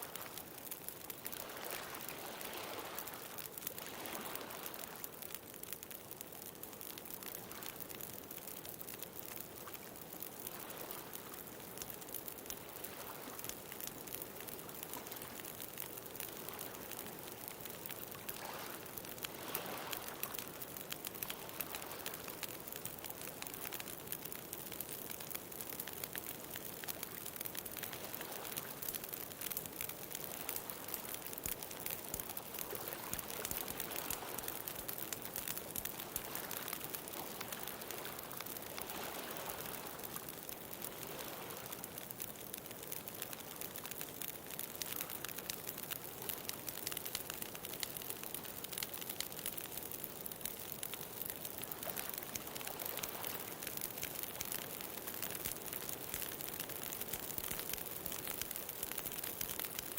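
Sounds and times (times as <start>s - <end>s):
bonfire crackling: 0.0s - 59.9s
ocean waves: 1.3s - 5.0s, 18.3s - 20.4s, 32.6s - 40.2s.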